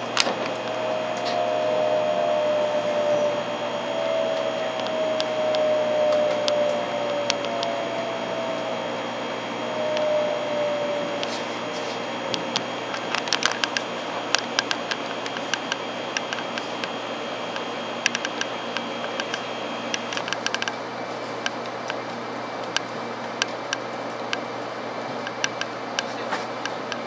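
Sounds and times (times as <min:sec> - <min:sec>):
train running hum with whine: 0:00.0 - 0:27.0
sharp clicks: 0:03.5 - 0:08.9, 0:09.6 - 0:20.8, 0:25.2 - 0:27.0.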